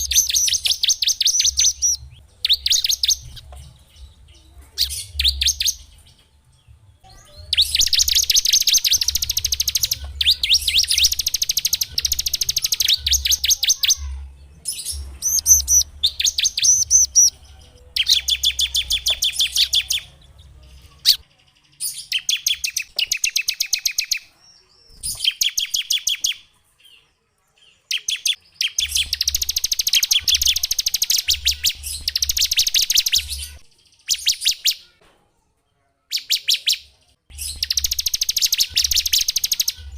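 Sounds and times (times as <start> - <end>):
songbird singing rapid trills: 0.0 - 6.0, 7.1 - 24.3, 27.9 - 34.8, 37.3 - 39.9.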